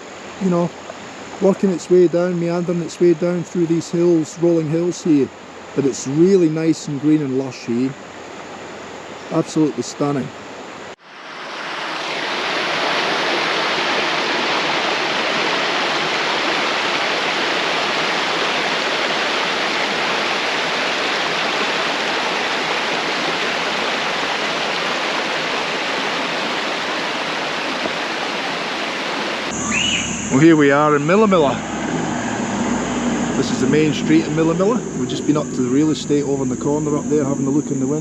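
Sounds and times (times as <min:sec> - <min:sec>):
river rushing over rapids: 0:07.5 - 0:29.6.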